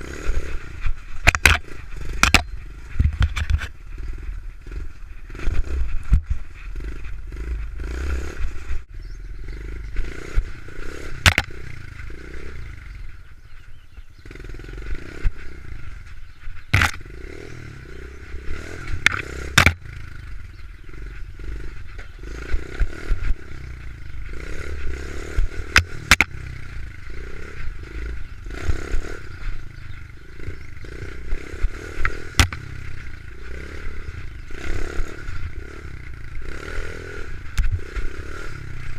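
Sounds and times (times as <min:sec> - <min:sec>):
small motorbike engine running: 0:00.0 - 0:38.9
sharp knocks: 0:11.2 - 0:11.5, 0:16.7 - 0:17.0, 0:19.0 - 0:19.8, 0:25.7 - 0:26.4, 0:32.3 - 0:32.6.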